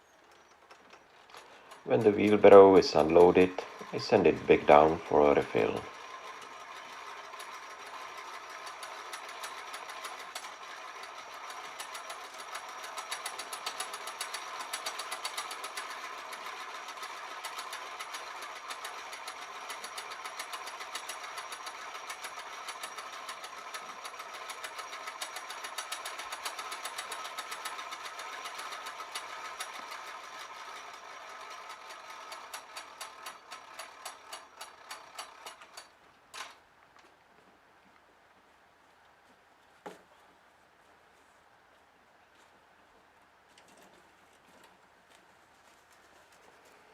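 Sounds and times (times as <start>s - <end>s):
hoist running with rapid ticking: 0.6s - 36.5s.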